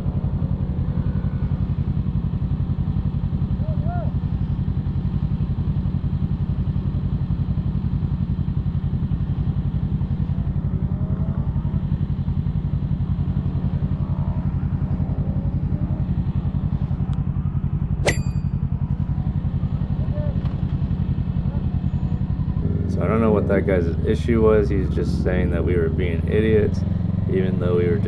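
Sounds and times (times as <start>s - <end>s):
motorcycle engine idling: 0.0s - 28.0s
sharp click: 18.0s - 18.6s.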